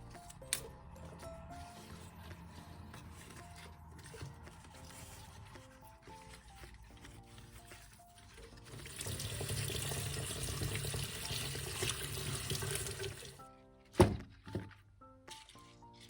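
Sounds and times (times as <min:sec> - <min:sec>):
soft background music: 0:00.0 - 0:16.0
tap water running into sink: 0:08.6 - 0:13.4.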